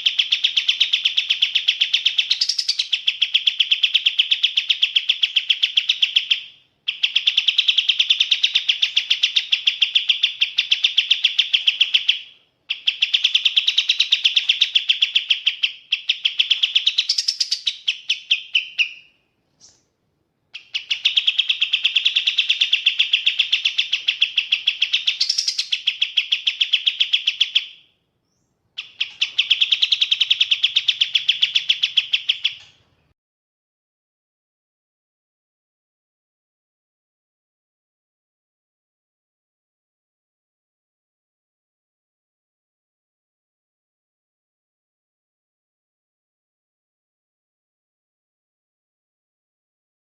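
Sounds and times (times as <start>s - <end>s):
songbird trilling: 0.0s - 19.8s, 20.5s - 32.8s.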